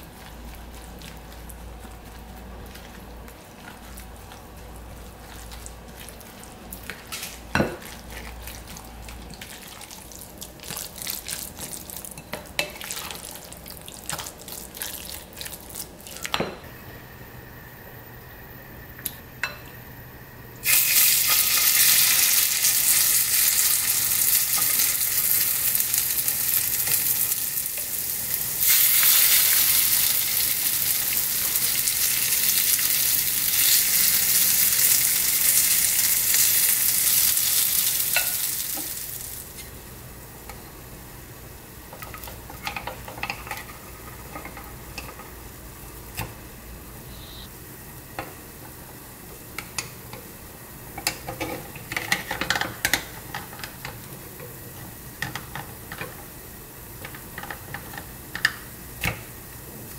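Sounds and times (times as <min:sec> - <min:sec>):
batter sizzling in hot oil: 0:20.6 - 0:39.9.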